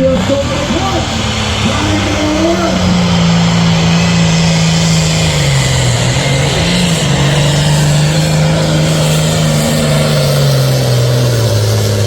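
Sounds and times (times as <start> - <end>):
diesel tractor engine under load: 0.0 - 12.0.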